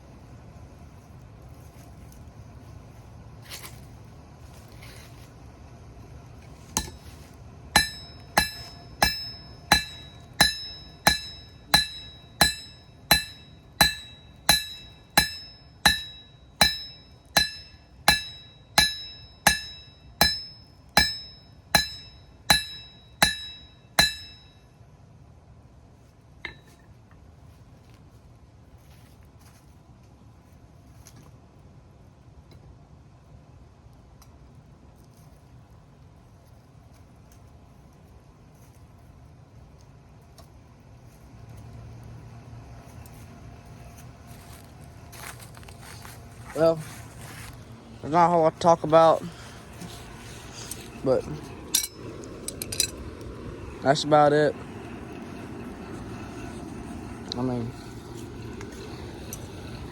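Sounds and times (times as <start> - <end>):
hammer striking metal on an anvil: 6.8 - 24.6, 26.4 - 26.8, 50.7 - 53.2.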